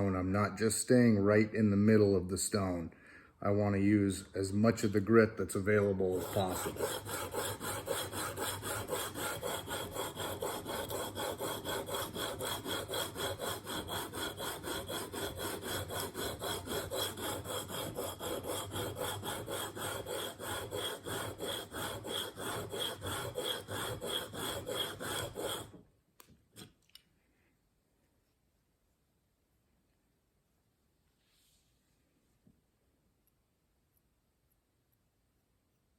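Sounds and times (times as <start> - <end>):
blade grinding on sharpening plate: 6.1 - 25.8.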